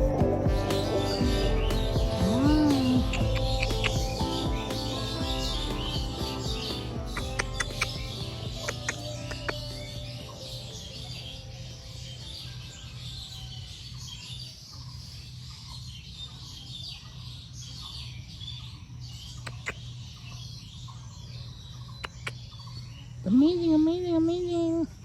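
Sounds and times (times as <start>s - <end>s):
small birds chirping: 0.0s - 25.0s
sharp clicks: 7.1s - 9.7s, 22.0s - 22.4s.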